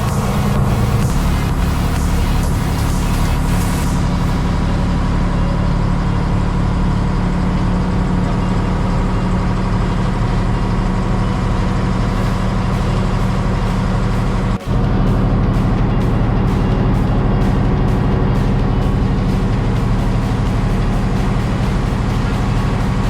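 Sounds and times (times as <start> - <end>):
heavy engine humming: 0.0 - 23.0.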